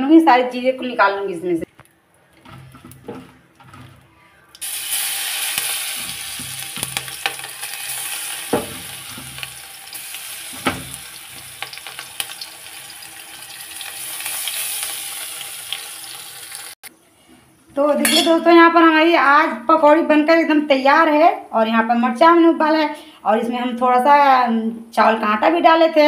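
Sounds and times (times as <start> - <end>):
chillies sizzling in hot oil: 2.6 - 16.8
knocks against the pan: 8.5 - 9.4.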